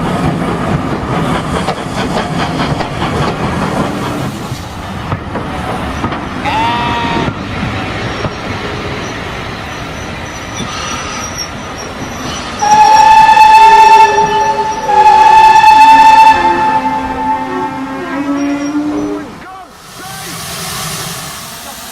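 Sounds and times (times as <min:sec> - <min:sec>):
steam locomotive rumbling: 0:00.0 - 0:21.9
steam whistle: 0:12.6 - 0:19.3.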